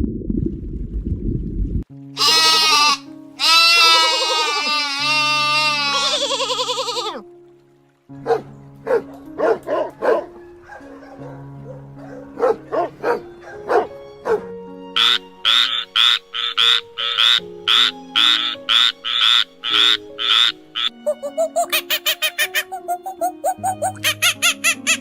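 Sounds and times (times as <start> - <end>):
background music with low notes: 1.8 - 25.0
short animal calls: 2.2 - 7.2.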